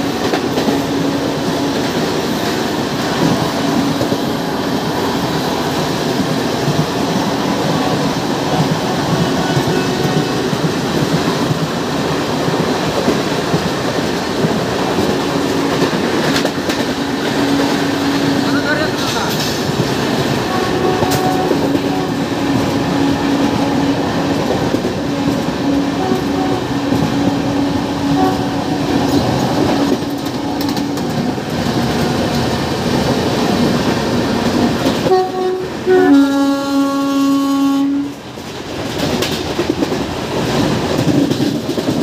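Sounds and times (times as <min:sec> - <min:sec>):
train wheels rumbling on track: 0:00.0 - 0:42.0
two-tone train horn: 0:08.9 - 0:10.6, 0:20.4 - 0:24.2, 0:25.0 - 0:29.1, 0:35.0 - 0:38.2.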